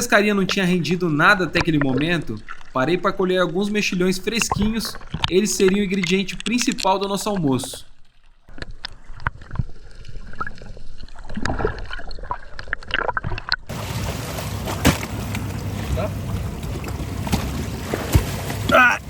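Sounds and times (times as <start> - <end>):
water sloshing and gurgling: 0.0 - 19.0
low hum: 13.7 - 18.8.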